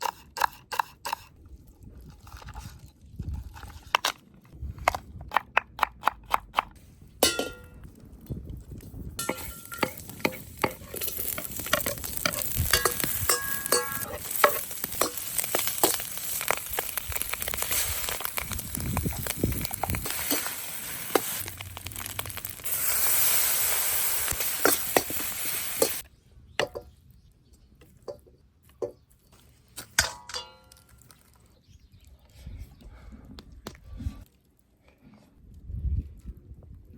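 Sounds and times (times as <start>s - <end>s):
utensil clanking against wok: 9.2s - 16.2s
rice sizzling in a wok: 9.2s - 26.0s.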